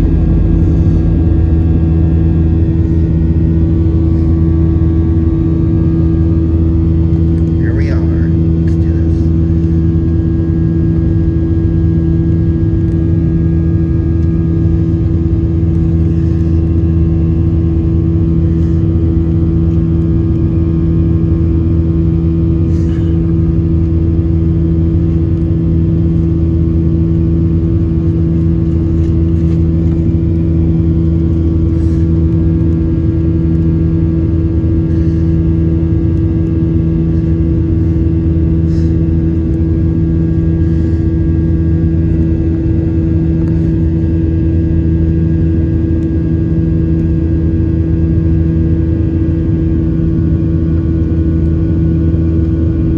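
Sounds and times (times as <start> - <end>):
jet engine drone inside cabin: 0.0 - 52.9.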